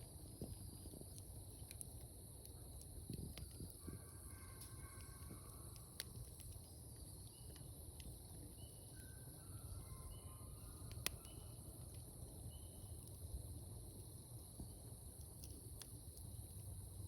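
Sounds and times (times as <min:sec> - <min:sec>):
wood fire crackling: 0:00.0 - 0:17.0
insect trill: 0:03.0 - 0:17.0
faint chirps: 0:03.4 - 0:13.3.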